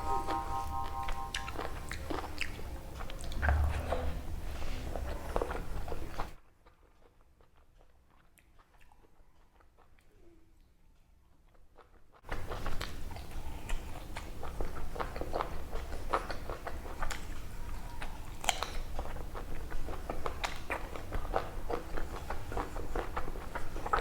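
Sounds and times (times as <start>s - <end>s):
wet chewing: 0.0s - 10.2s, 11.5s - 24.0s
lip-smacking: 12.3s - 24.0s.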